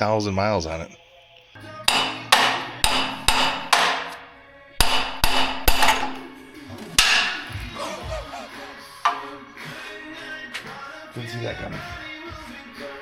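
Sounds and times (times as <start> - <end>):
hammer striking metal: 1.8 - 6.3, 7.0 - 7.6, 9.0 - 9.4.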